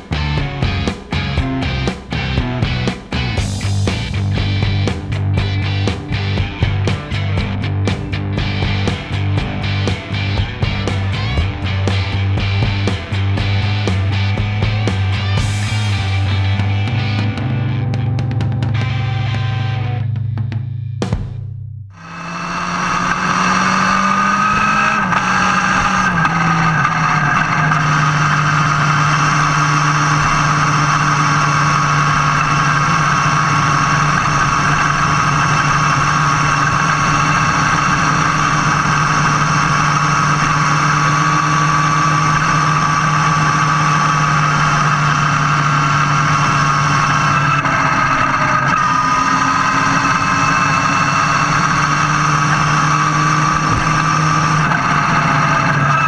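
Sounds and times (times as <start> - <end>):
motorcycle engine running: 0.0 - 56.0
wind and road noise: 22.0 - 56.0.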